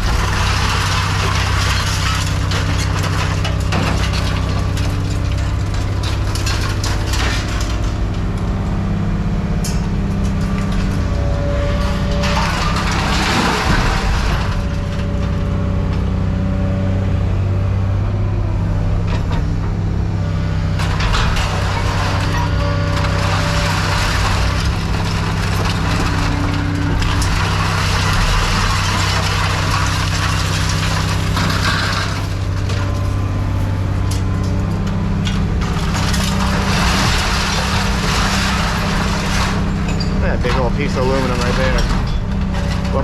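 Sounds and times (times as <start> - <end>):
heavy machinery engine drone: 0.0 - 43.0
scrap metal crunching: 0.0 - 43.0
metal clanking: 20.8 - 43.0.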